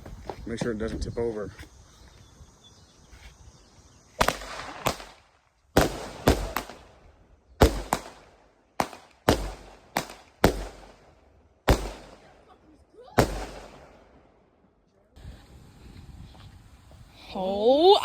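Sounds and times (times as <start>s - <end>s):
firework bangs: 4.2s - 5.2s, 5.8s - 12.4s, 13.2s - 14.2s.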